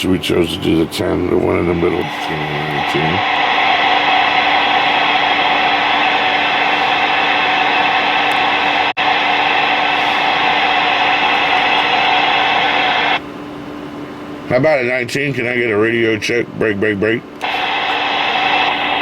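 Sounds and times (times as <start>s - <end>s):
radio static: 0.3s - 13.2s, 17.4s - 19.0s.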